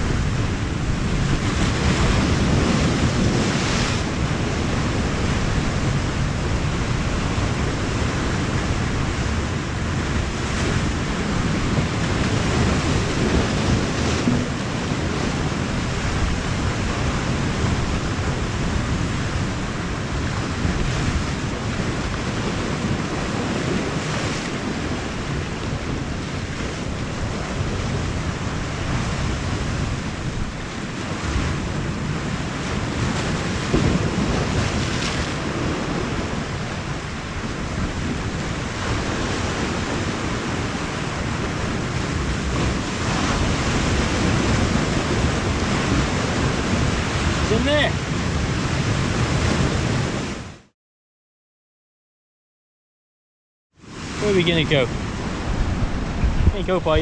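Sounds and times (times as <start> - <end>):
surf washing against rocks: 0.0 - 50.6, 53.8 - 57.0
wind buffeting microphone: 0.0 - 50.6, 53.8 - 57.0.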